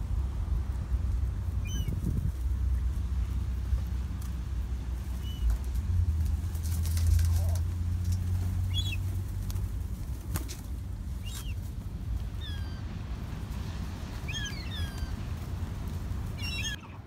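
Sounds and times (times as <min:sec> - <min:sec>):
steady low rumble: 0:00.0 - 0:17.0
birds chirping: 0:01.4 - 0:03.9, 0:05.0 - 0:05.7, 0:07.2 - 0:17.0.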